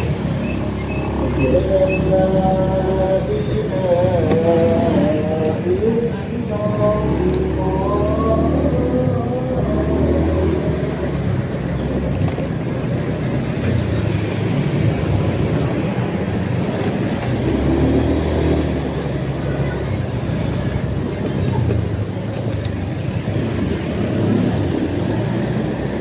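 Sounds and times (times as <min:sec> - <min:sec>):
road noise: 0:00.0 - 0:26.0.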